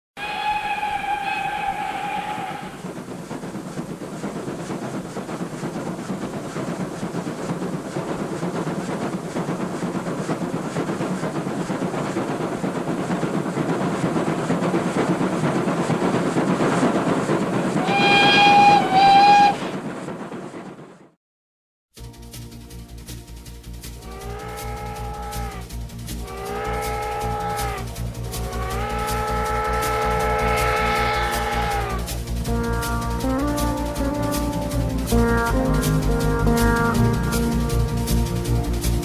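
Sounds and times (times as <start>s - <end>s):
train rumbling on rails: 0.2s - 21.2s, 22.2s - 39.0s
wheels clickety-clack: 0.2s - 21.2s, 22.3s - 39.0s
train horn blasts: 17.8s - 19.6s, 24.0s - 25.6s, 26.2s - 32.7s.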